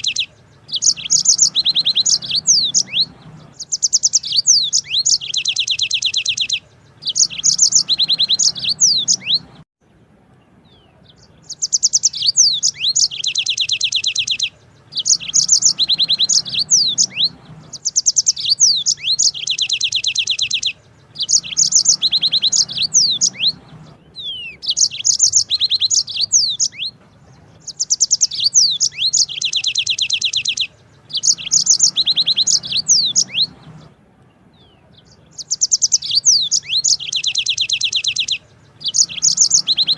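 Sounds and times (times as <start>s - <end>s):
canary singing trills: 0.0s - 9.7s, 10.4s - 39.9s.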